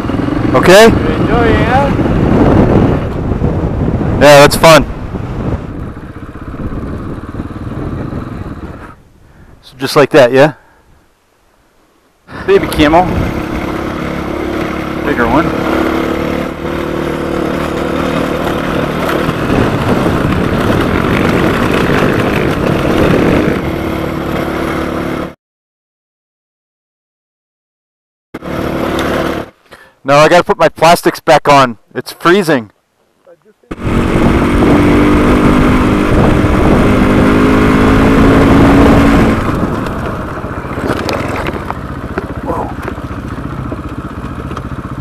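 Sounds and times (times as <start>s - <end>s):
motorcycle engine running: 0.0s - 9.5s, 12.3s - 25.3s, 28.4s - 29.6s, 33.7s - 45.0s.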